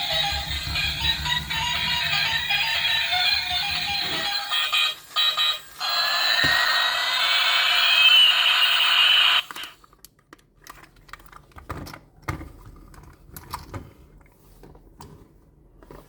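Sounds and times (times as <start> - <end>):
electronic rising tones: 0.0 - 4.8
toy vehicles clicking: 0.0 - 10.1.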